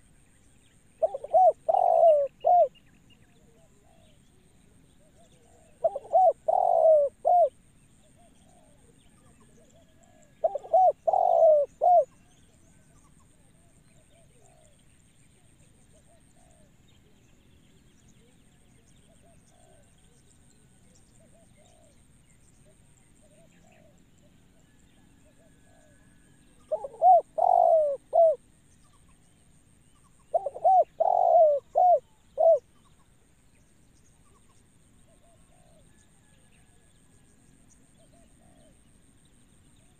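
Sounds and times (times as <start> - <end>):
dove cooing: 1.0 - 2.8, 5.0 - 8.9, 9.6 - 12.2, 24.6 - 28.4, 30.2 - 32.7.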